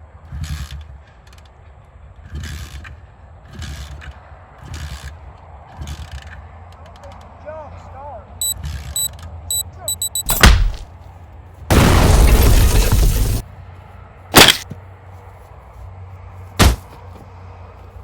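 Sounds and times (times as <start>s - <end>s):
loud crash: 11.7s - 13.4s
hard hits: 16.6s - 16.9s.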